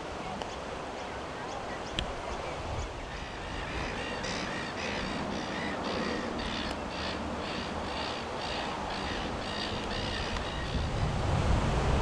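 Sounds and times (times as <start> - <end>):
bird giving rasping calls: 3.1 - 10.9.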